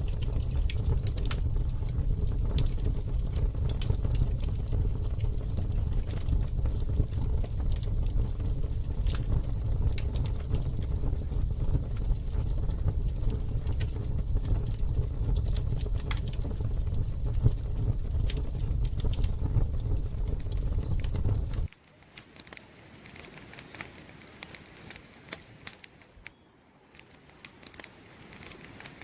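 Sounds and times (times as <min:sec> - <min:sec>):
low rumble: 0:00.0 - 0:21.7
campfire crackling and popping: 0:00.0 - 0:26.3.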